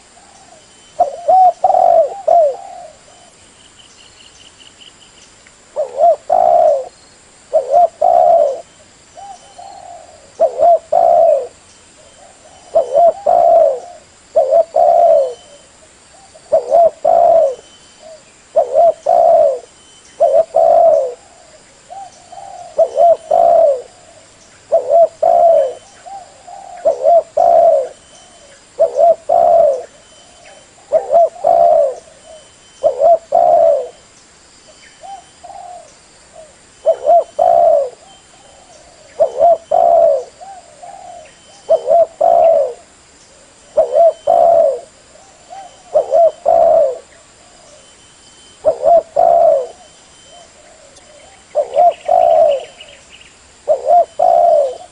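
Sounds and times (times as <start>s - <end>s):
dove cooing: 0.0s - 3.4s, 5.8s - 34.0s, 35.0s - 47.9s, 48.5s - 53.0s, 53.6s - 54.9s.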